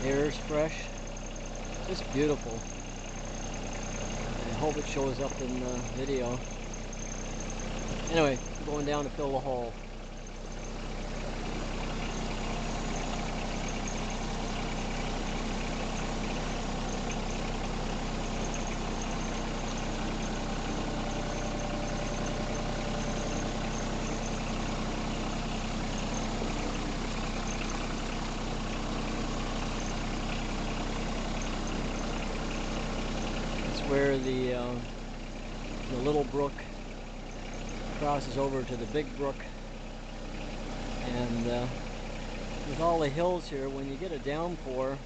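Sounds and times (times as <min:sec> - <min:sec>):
loader engine running: 0:00.0 - 0:45.0.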